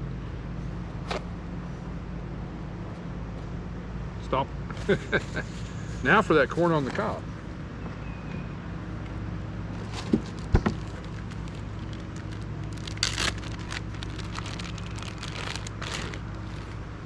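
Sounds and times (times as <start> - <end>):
low motor hum: 7.2 - 17.0
corn husk crinkling and tearing: 9.8 - 16.8.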